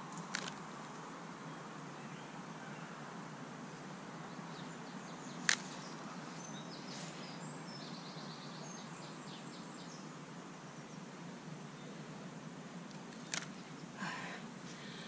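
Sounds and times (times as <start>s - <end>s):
outdoor background hiss: 0.0s - 15.0s
birds singing and chirping: 4.2s - 11.1s.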